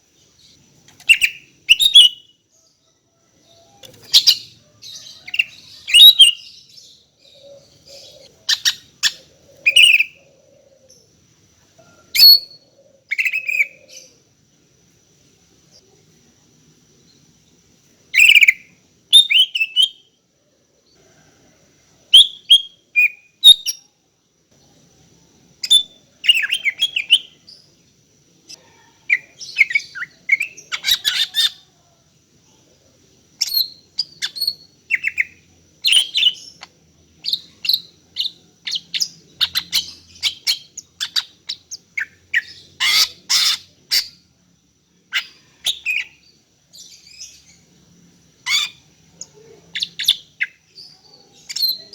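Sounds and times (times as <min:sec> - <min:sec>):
bird chirping and whistling: 0:01.1 - 0:02.3, 0:05.4 - 0:06.4.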